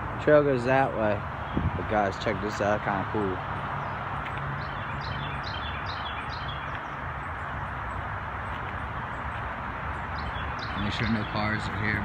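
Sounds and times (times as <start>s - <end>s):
distant highway traffic: 0.0s - 12.0s
bird chirping: 3.7s - 12.0s.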